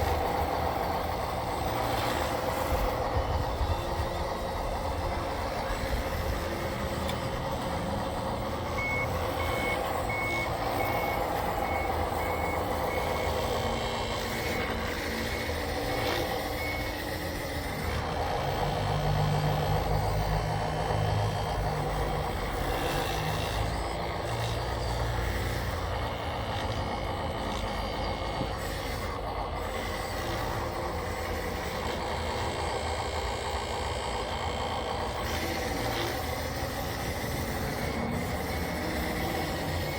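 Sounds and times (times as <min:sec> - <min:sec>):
motors and gears whining: 0:00.0 - 0:39.9
reversing beeper: 0:08.4 - 0:17.9.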